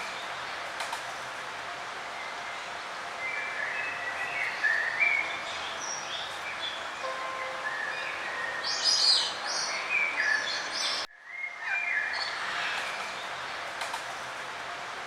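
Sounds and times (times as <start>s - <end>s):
steady background hiss: 0.0s - 15.0s
birds chirping and singing: 3.3s - 12.4s.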